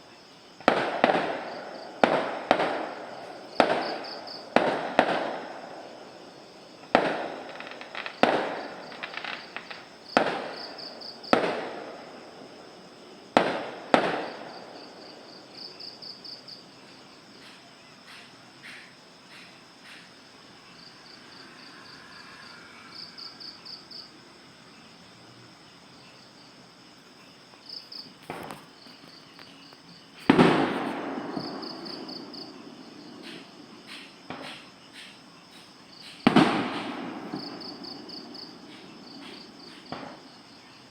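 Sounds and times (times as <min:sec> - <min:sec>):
crickets chirping: 0:00.0 - 0:40.9
fireworks bangs with echoing rumble: 0:00.6 - 0:15.3, 0:30.2 - 0:35.1, 0:36.0 - 0:40.3.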